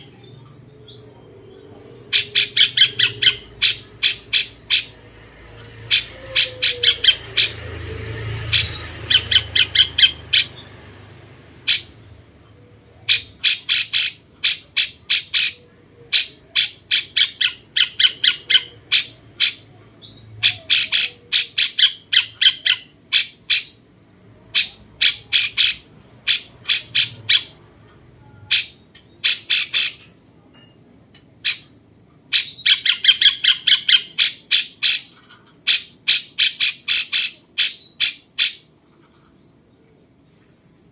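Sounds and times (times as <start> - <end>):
faint steady high whine: 0.0 - 40.9
bird calling rapid sharp notes: 2.1 - 7.7, 8.4 - 10.6.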